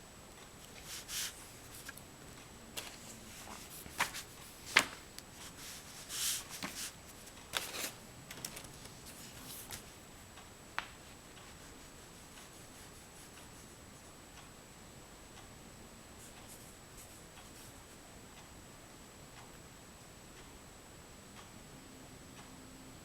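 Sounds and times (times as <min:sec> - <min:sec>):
pastel scratching on paper: 0:11.5 - 0:14.1.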